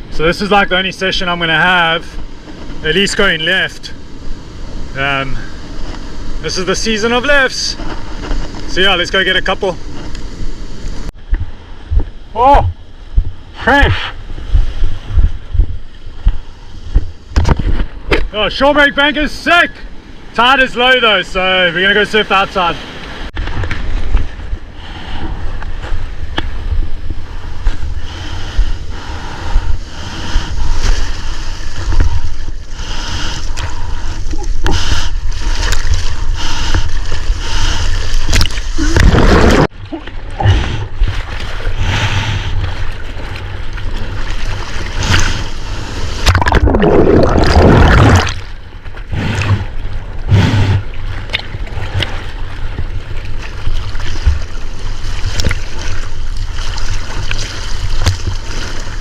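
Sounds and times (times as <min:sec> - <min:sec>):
water splashing and churning: 0:00.0 - 0:59.0
wind buffeting microphone: 0:05.6 - 0:18.3, 0:22.8 - 0:39.7.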